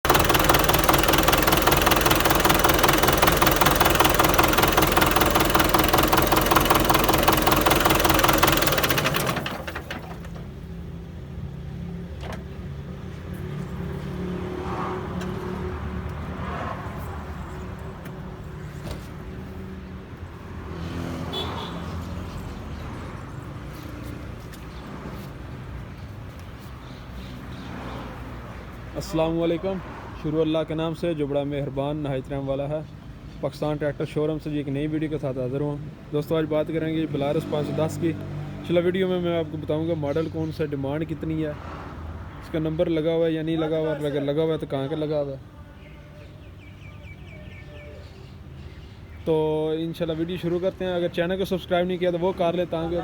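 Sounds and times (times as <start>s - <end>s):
tractor diesel engine running: 0.0s - 10.8s.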